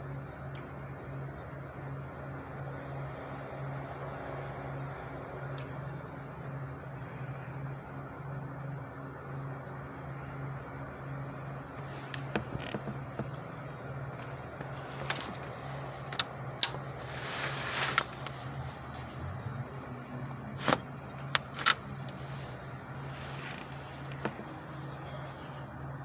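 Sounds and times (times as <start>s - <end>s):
vehicle engine idling: 0.0s - 26.0s
rustling: 11.0s - 25.8s
sharp clicks and rattles: 11.6s - 24.8s.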